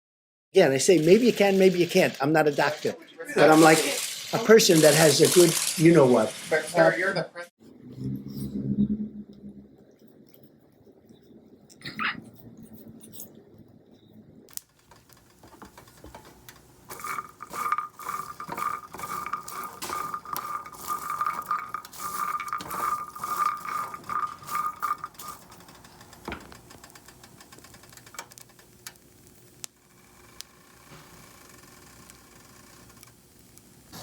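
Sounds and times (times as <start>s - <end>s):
tableware clinking and clattering: 14.9s - 28.2s.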